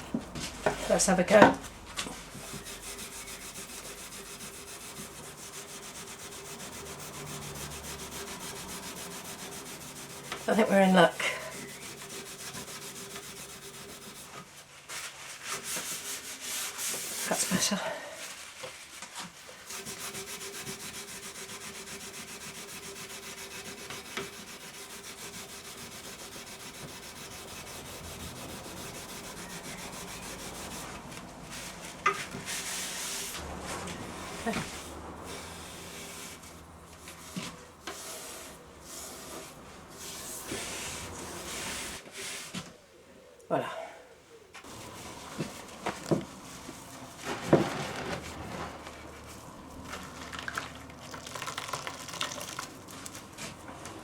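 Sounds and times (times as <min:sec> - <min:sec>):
steady hum: 0:01.6 - 0:14.3
rubbing strokes on wood: 0:02.1 - 0:42.6, 0:44.6 - 0:49.8
scrubbing wooden stool frame: 0:02.1 - 0:42.6, 0:44.6 - 0:53.6.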